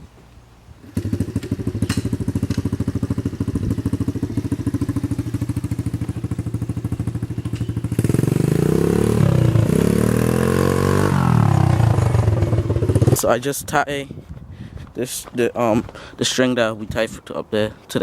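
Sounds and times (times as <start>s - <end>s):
small motorcycle engine idling and revving: 0.8s - 13.3s.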